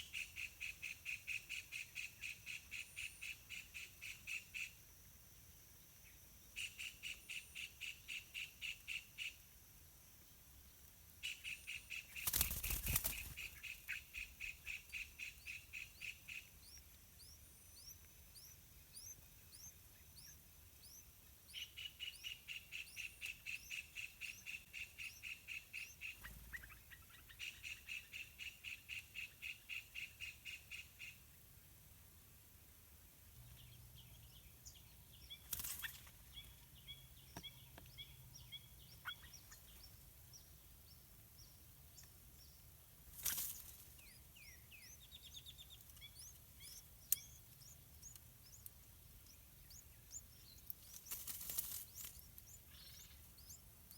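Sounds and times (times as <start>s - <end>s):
upward-sweeping bird chirps: 51.8s - 53.6s.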